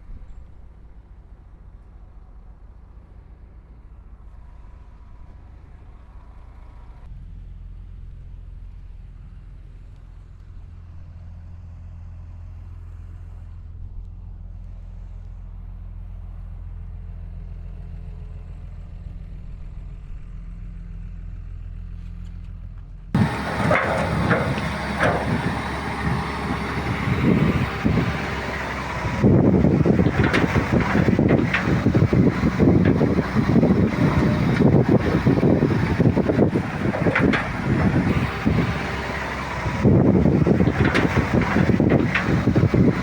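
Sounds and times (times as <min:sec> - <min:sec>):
bulldozer diesel engine running: 0:23.2 - 0:43.0.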